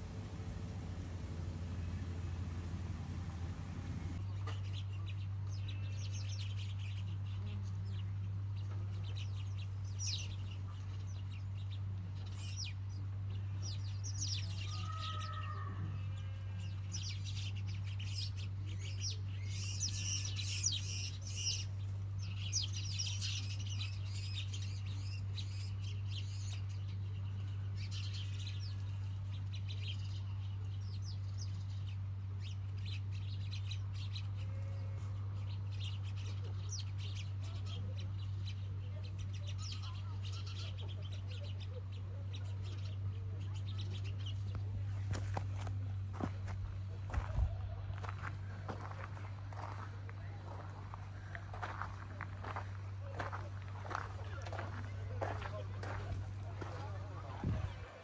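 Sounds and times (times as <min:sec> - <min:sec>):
low gliding bird calls: 0:00.0 - 0:04.2
steady low hum: 0:00.0 - 0:14.6, 0:15.8 - 0:58.0
small birds twittering: 0:00.0 - 0:58.0.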